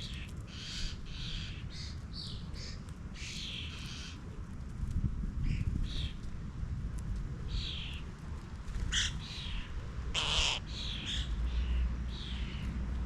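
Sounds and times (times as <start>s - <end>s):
birds calling: 0.0s - 4.2s, 8.9s - 12.7s
harsh bird call: 10.2s - 11.3s.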